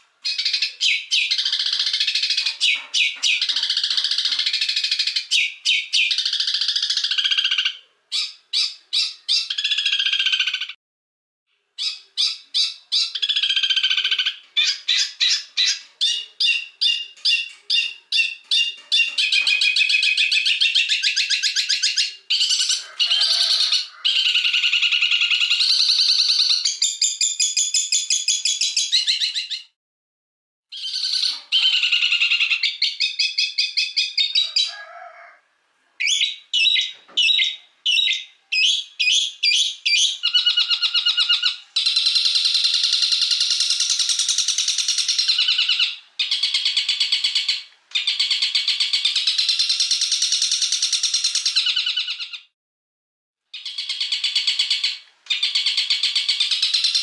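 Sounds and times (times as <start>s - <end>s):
songbird chirps and trills: 0.0s - 10.8s, 11.8s - 29.7s, 30.7s - 35.3s, 36.0s - 52.4s.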